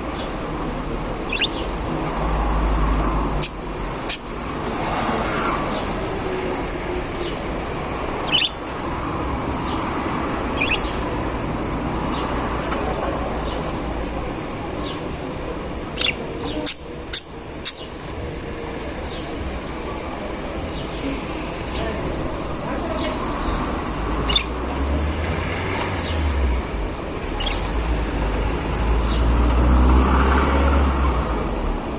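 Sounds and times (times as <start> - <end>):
steady background noise: 0.0 - 31.9
budgerigars chirping: 1.2 - 1.8, 3.4 - 4.3, 8.2 - 9.0, 10.4 - 11.2, 16.0 - 18.0, 24.2 - 24.6, 27.4 - 27.7.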